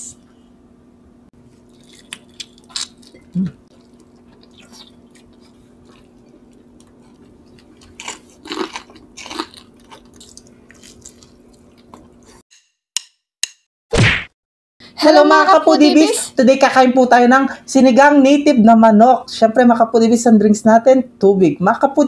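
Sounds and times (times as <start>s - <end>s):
steady low hum: 0.0s - 12.4s
people chewing and biting chicken: 1.5s - 12.4s.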